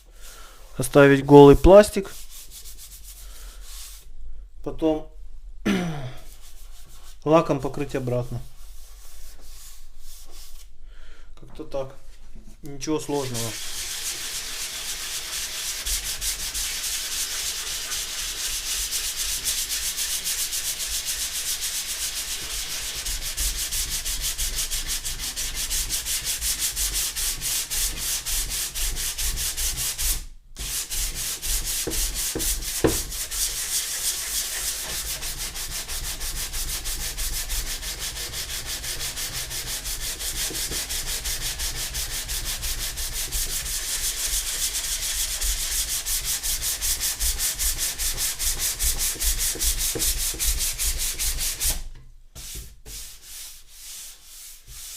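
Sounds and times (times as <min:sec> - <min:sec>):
sandpaper rubbing on plastic: 0:13.2 - 0:51.8, 0:52.4 - 0:54.9.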